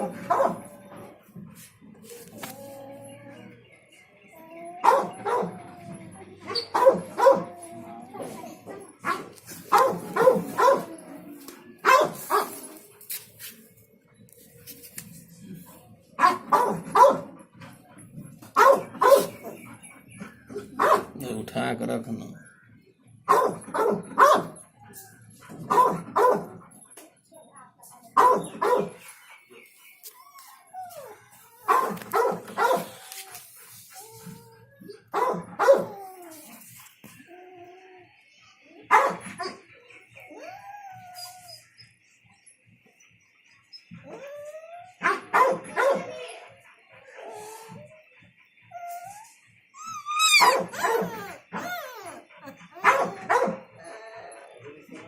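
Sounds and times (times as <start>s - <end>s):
puppy barking: 0.0s - 0.7s, 4.8s - 5.5s, 6.5s - 7.6s, 9.0s - 10.9s, 11.8s - 12.6s, 16.2s - 17.3s, 18.6s - 19.6s, 20.8s - 21.2s, 23.3s - 24.6s, 25.7s - 26.6s, 28.2s - 29.0s, 31.6s - 33.2s, 35.2s - 36.0s, 38.9s - 39.6s, 45.0s - 46.3s, 49.9s - 53.8s
puppy whining: 29.6s - 38.1s, 40.2s - 42.0s, 43.8s - 45.0s, 47.1s - 54.9s
puppy yelping: 49.8s - 54.2s.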